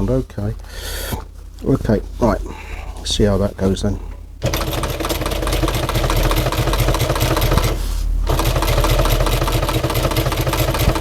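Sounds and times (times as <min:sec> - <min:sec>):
sewing machine stitching: 0:04.4 - 0:11.0.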